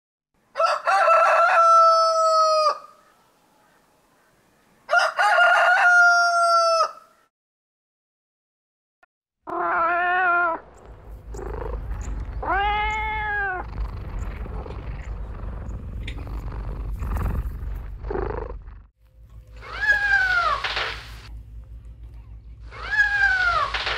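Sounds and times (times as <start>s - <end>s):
kitten meowing: 9.5s - 10.6s, 11.3s - 13.7s
steady low rumble: 10.6s - 19.6s, 21.1s - 22.7s.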